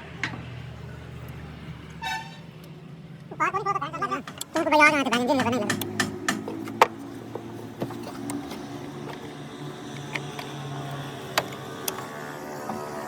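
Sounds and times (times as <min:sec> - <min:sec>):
sharp clicks and taps: 0:04.2 - 0:08.4.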